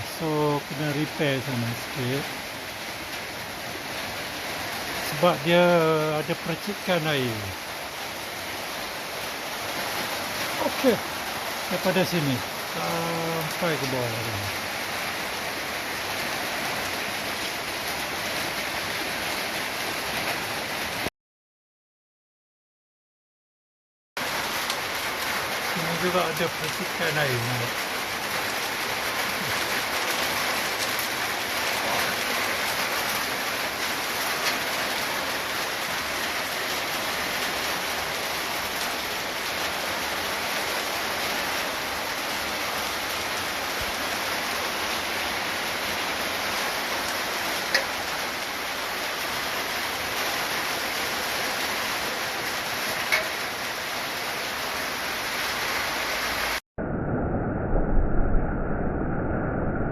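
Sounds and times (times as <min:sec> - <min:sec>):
heavy rain pouring: 0:00.0 - 0:21.1, 0:24.2 - 0:56.6
muffled noise: 0:56.8 - 0:59.9.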